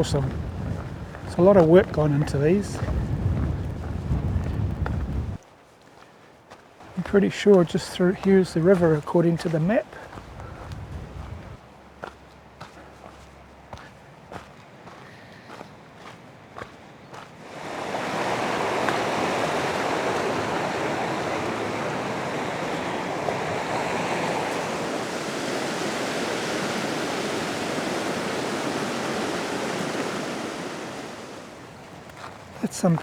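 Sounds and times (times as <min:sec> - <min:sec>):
river rushing: 0:00.0 - 0:04.1, 0:17.4 - 0:33.0.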